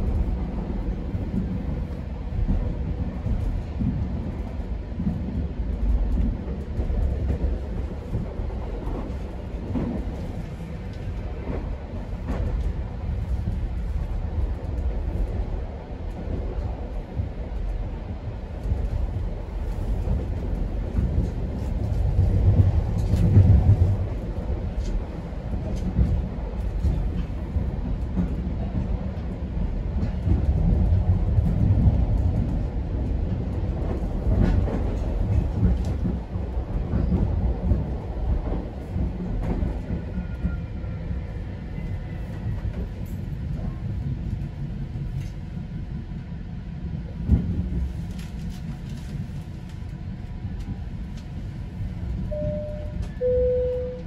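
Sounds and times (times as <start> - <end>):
train wheels rumbling on track: 0.0 - 54.0
rail clicks: 18.6 - 40.6, 47.3 - 54.0
two-note chime: 52.4 - 54.0.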